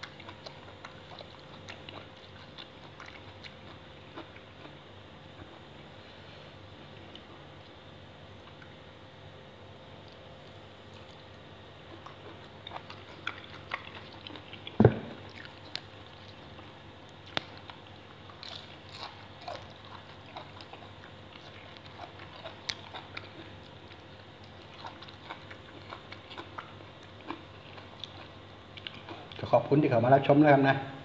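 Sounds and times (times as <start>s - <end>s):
person chewing crunchy food: 0.0s - 5.7s, 10.0s - 29.5s
loud thump: 14.8s - 15.2s.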